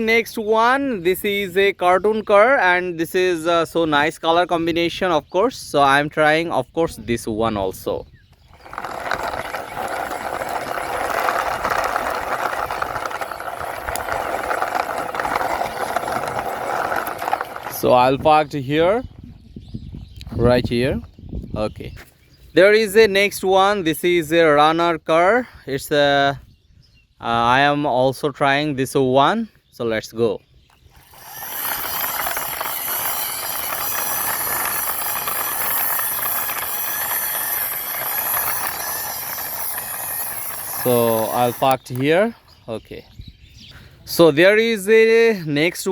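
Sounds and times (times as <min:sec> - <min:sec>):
toy car wheels rattling: 0:07.7 - 0:18.5, 0:30.8 - 0:42.2.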